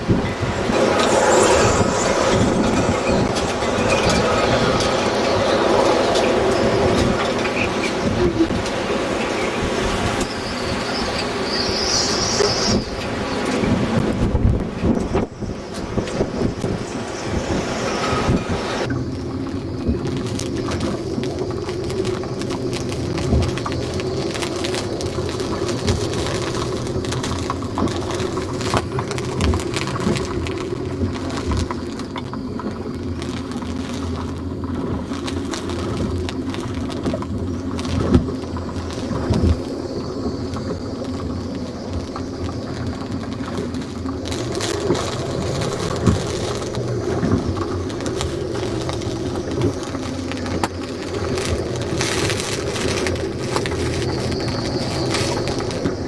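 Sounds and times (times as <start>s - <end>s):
storm wind: 0.0s - 56.0s.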